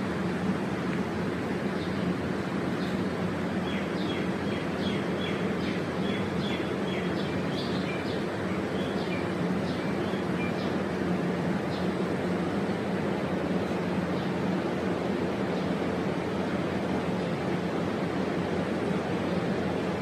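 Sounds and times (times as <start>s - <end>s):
steady low hum: 0.0s - 20.0s
small bird chirping: 3.6s - 10.8s.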